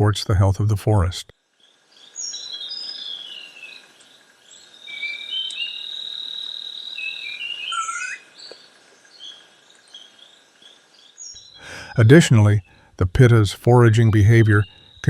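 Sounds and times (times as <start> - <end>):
insects droning: 1.4 - 15.0
birds whistling and chirping: 2.1 - 3.8, 4.8 - 8.6, 11.1 - 12.8, 14.0 - 15.0
long high bird whistle: 7.2 - 8.2.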